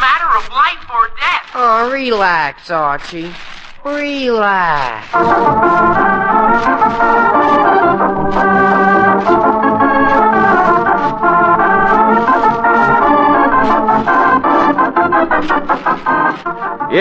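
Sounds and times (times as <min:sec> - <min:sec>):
organ music: 0:03.8 - 0:17.0.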